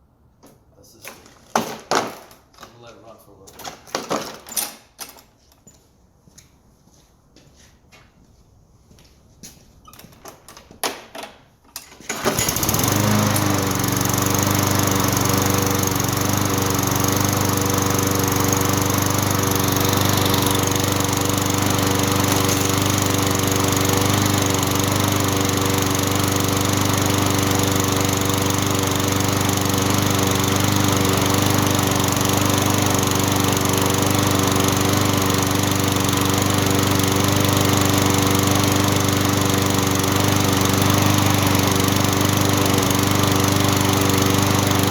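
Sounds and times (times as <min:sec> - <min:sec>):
lawn mower engine running: 0:11.9 - 0:44.9.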